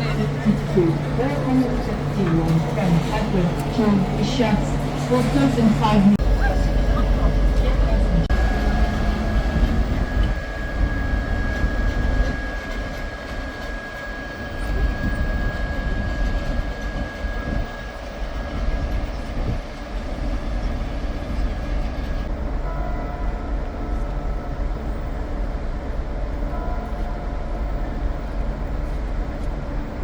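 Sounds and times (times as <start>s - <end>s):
high whine: 0.0s - 19.6s
train rumbling on rails: 0.0s - 30.0s.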